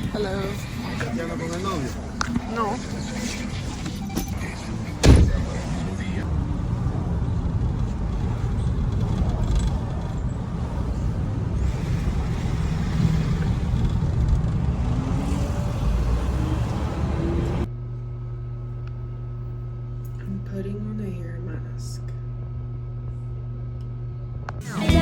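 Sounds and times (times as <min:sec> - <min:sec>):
steady low hum: 0:00.0 - 0:15.2, 0:17.1 - 0:25.0
road and engine rumble in car: 0:00.0 - 0:17.7.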